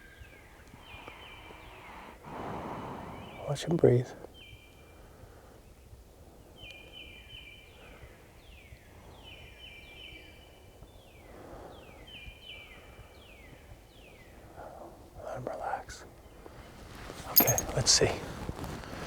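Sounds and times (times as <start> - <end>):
songbird singing faintly: 6.5 - 11.3.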